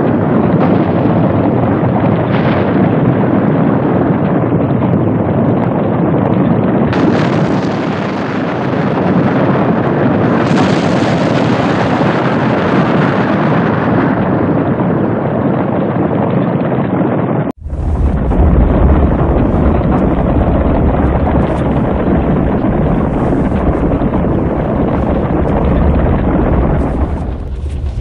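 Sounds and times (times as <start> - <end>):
deeper sound: 17.5 - 28.0
loud steady rushing noise: 17.6 - 28.0.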